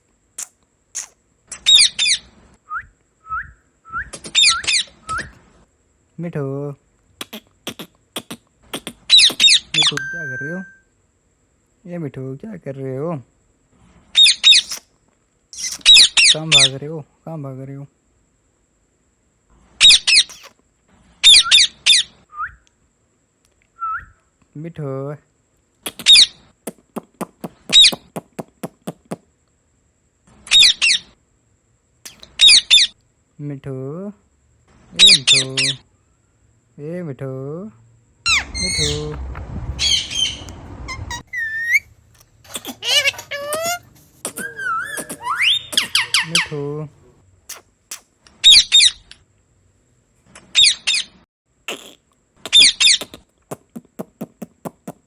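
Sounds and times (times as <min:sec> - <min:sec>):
parrot squawking: 0:00.4 - 0:02.3, 0:04.2 - 0:05.1, 0:07.2 - 0:10.8, 0:14.2 - 0:14.8, 0:15.6 - 0:16.8, 0:25.9 - 0:26.4, 0:27.2 - 0:28.1, 0:32.1 - 0:32.9, 0:35.0 - 0:35.8, 0:38.3 - 0:39.2, 0:39.8 - 0:46.8, 0:47.9 - 0:49.1, 0:50.4 - 0:51.1, 0:51.7 - 0:53.2
parakeet screeching: 0:01.0 - 0:02.3, 0:04.2 - 0:05.0, 0:07.2 - 0:10.8, 0:14.2 - 0:14.8, 0:15.6 - 0:16.7, 0:38.3 - 0:39.2, 0:39.8 - 0:46.7, 0:48.4 - 0:49.1, 0:50.5 - 0:51.1.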